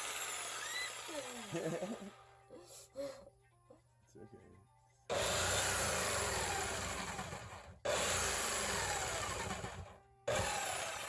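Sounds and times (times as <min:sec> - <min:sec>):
jigsaw cutting wood: 0:00.0 - 0:02.2, 0:05.1 - 0:11.0.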